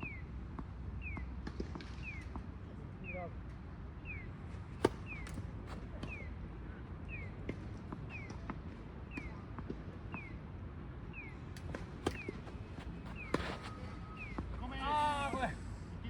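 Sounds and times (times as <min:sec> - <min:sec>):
tennis balls being struck: 0:04.7 - 0:06.2, 0:11.4 - 0:14.6.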